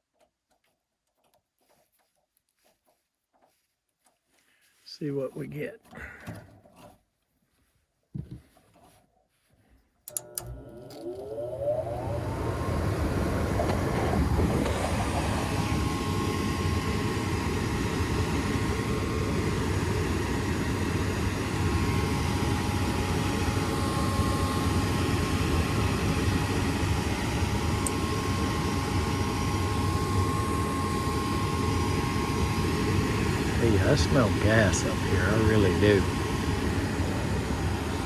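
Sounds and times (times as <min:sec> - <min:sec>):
faint steady whine: 0:10.1 - 0:38.0
gas furnace rumbling: 0:11.2 - 0:38.0.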